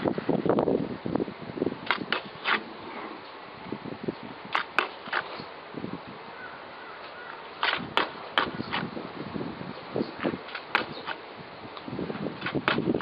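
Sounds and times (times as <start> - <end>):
steady background hiss: 0.0 - 13.0
sharp knocks and clicks: 10.2 - 11.2.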